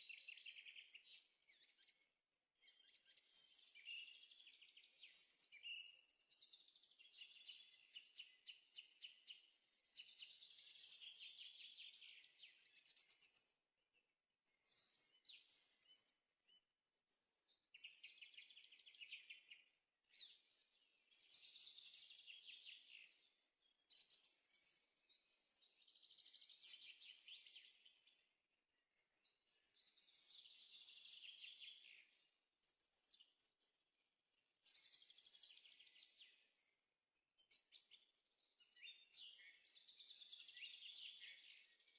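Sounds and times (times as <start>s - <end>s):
songbird singing trills: 29.0s - 33.4s.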